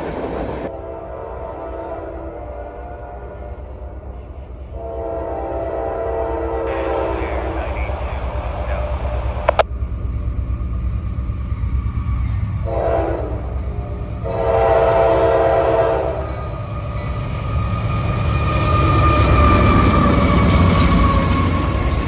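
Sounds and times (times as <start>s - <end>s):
train rumbling past: 0.0s - 22.0s
locomotive horn blasts: 0.7s - 4.1s, 4.7s - 8.0s, 12.6s - 16.5s.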